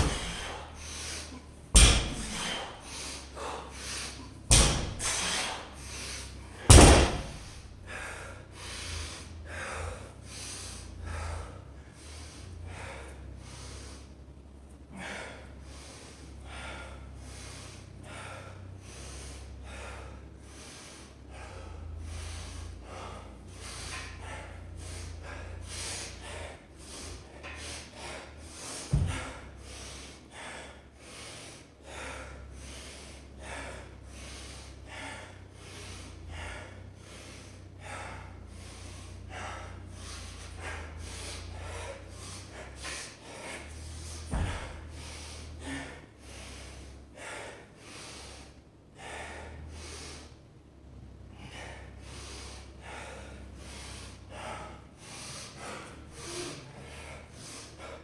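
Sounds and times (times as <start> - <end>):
low steady hum: 0.0 - 58.0
person breathing hard: 0.0 - 58.0
sharp thump: 1.8 - 2.6, 4.5 - 5.6, 6.7 - 7.6.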